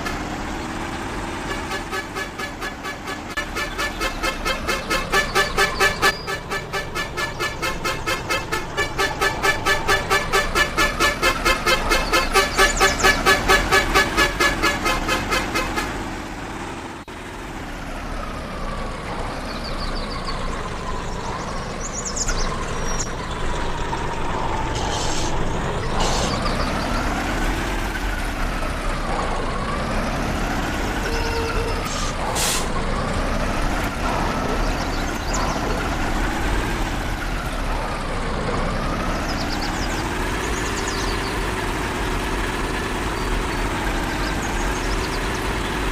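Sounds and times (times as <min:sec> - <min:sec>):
vehicle engine revving: 0:00.0 - 0:45.9.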